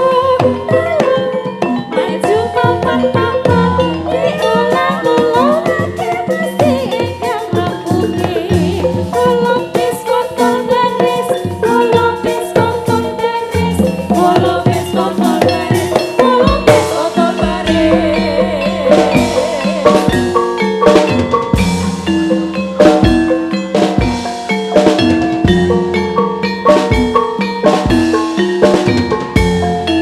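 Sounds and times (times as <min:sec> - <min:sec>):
metallophone notes: 0:00.0 - 0:30.0
drum kit: 0:00.3 - 0:30.0
drum strokes: 0:11.4 - 0:30.0.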